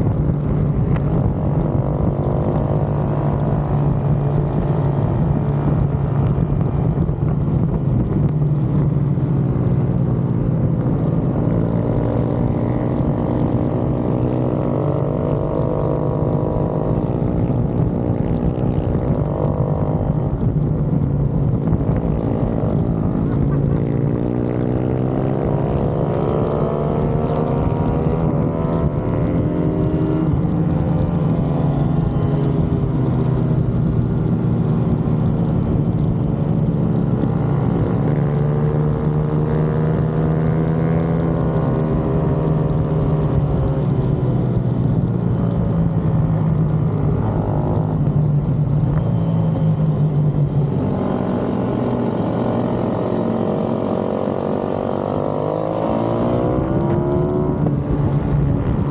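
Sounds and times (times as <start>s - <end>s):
motorbike engine revving: 37.4s - 38.8s, 47.0s - 57.5s
hiss: 37.5s - 38.6s, 48.2s - 56.5s.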